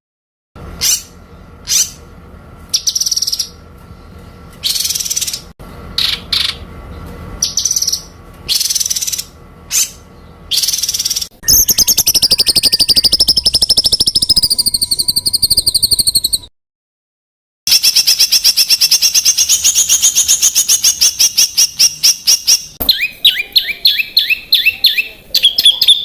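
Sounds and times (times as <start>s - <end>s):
songbird singing rattling trill: 2.7s - 3.6s, 4.6s - 6.7s, 7.4s - 16.5s, 17.7s - 26.0s.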